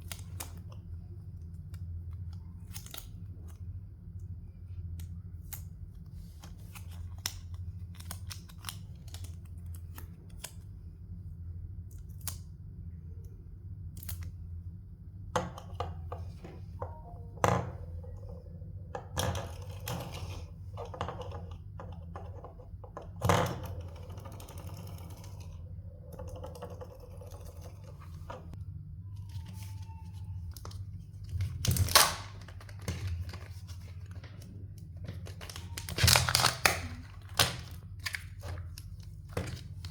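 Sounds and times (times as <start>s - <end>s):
steady low hum: 0.0s - 39.9s
wrappers tearing and crinkling: 35.2s - 39.0s.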